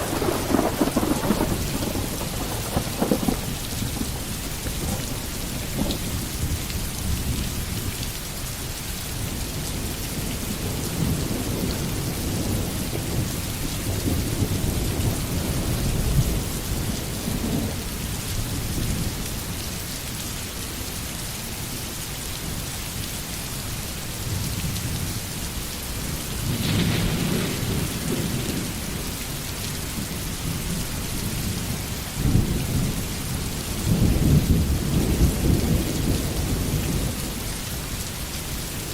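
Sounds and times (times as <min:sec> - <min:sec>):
sharp thunderclap: 0:00.0 - 0:05.2, 0:26.4 - 0:29.0
thunder rolling: 0:00.0 - 0:06.0, 0:26.4 - 0:29.0
rain hissing: 0:00.0 - 0:20.1, 0:24.3 - 0:38.9.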